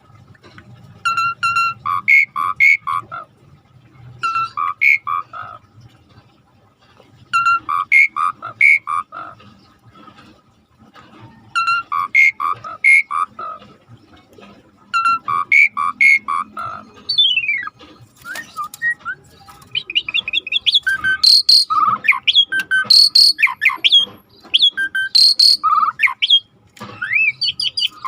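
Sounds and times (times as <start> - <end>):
starling whistling song: 1.0 - 3.0, 4.2 - 5.5, 7.3 - 9.1, 11.4 - 13.4, 14.9 - 28.0.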